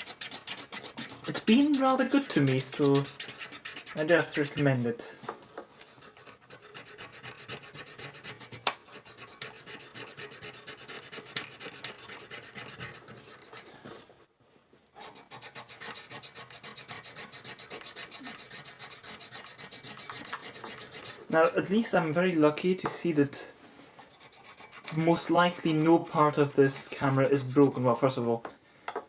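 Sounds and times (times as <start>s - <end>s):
scrubbing on metal: 0.0s - 5.1s, 15.2s - 22.2s, 24.0s - 27.5s.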